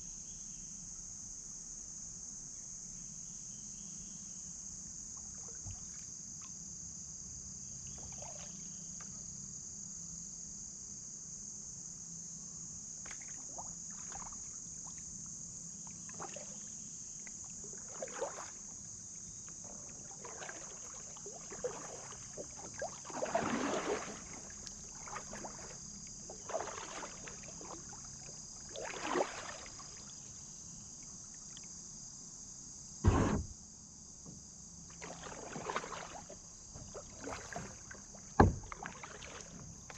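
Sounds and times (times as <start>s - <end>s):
insects droning: 0.0s - 39.9s
paddle splashing water: 13.1s - 15.0s, 16.0s - 16.7s, 17.3s - 30.2s, 33.1s - 33.5s, 34.9s - 39.9s
sharp knock: 33.0s - 33.5s.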